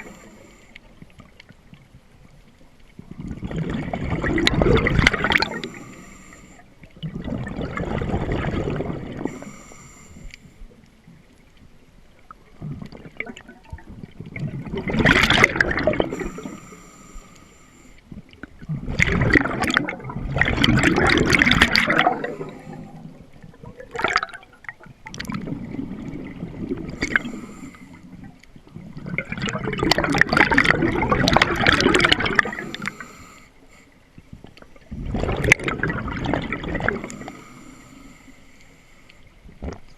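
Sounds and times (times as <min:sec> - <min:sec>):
bubbles gurgling underwater: 0:02.9 - 0:05.9, 0:06.8 - 0:09.4, 0:12.2 - 0:16.6, 0:18.2 - 0:33.1, 0:34.4 - 0:37.4.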